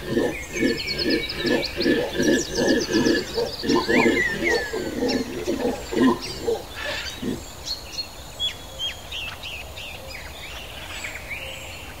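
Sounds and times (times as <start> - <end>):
low bird calls: 0.0 - 8.0
forest birds chirping: 0.0 - 12.0.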